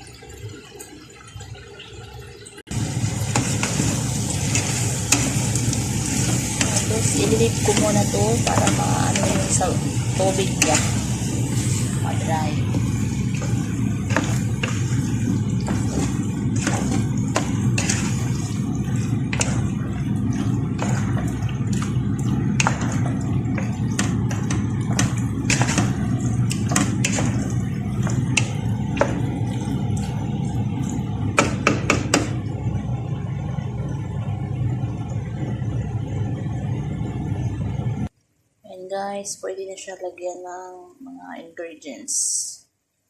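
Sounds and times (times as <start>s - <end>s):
chicken cooking in a pan: 2.7s - 36.4s
low rumble: 2.7s - 38.1s
utensil clicking and scraping pan: 12.6s - 29.3s.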